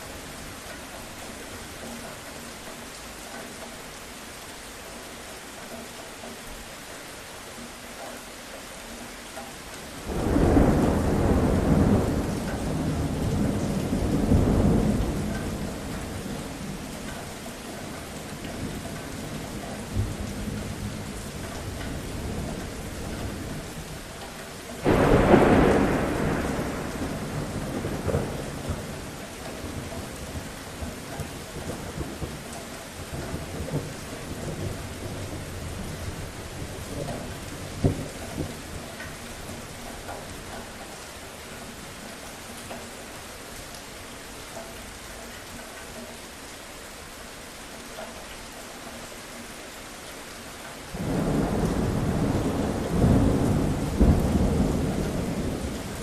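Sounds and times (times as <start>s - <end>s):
steady rain falling: 0.0s - 56.0s
thunder rumbling: 10.0s - 16.8s, 24.8s - 32.4s, 50.9s - 56.0s.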